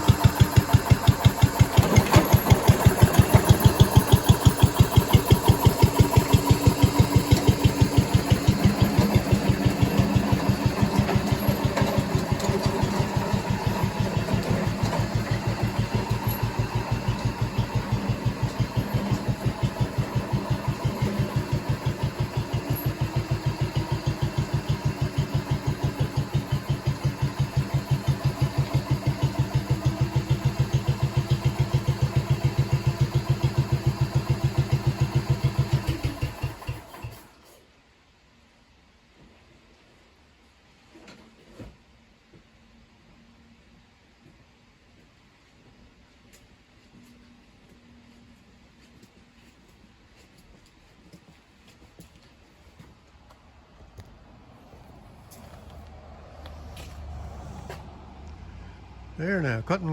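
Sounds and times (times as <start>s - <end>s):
tractor engine running: 0.0s - 37.4s.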